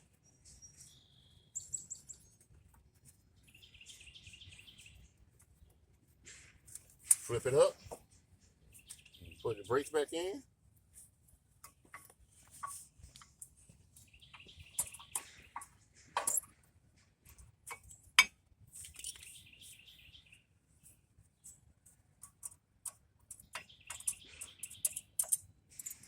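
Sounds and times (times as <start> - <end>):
metal clicks and clinks: 14.8 - 16.6, 22.2 - 26.0.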